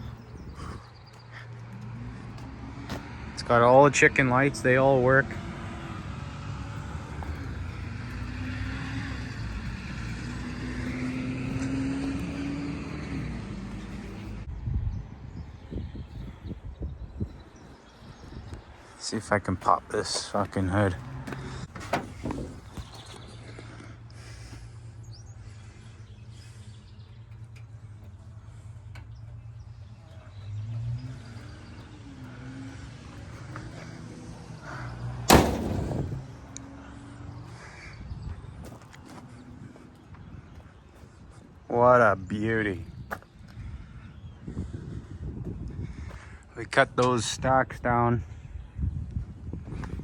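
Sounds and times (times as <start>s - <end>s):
bird chirp: 0.0s - 2.2s, 22.1s - 34.6s
truck engine idling: 0.0s - 14.5s, 19.0s - 36.6s.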